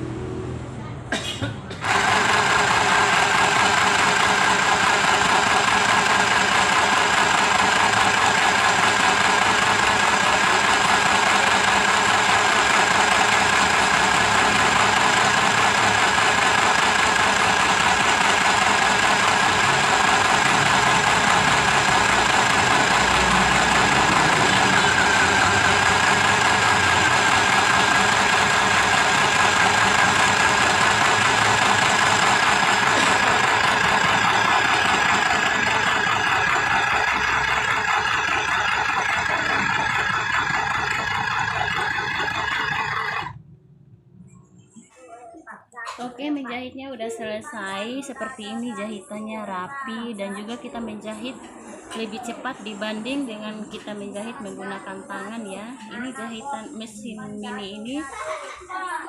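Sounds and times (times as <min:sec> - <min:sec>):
sewing machine running: 0:01.8 - 0:43.4.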